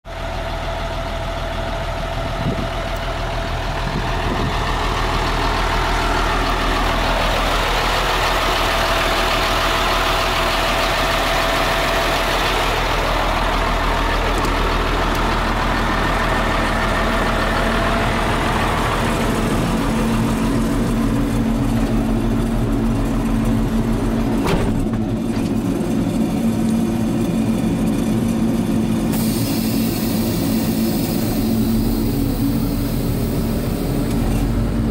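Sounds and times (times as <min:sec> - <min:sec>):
diesel truck engine running: 0:00.1 - 0:34.9
broad hiss: 0:29.1 - 0:34.6.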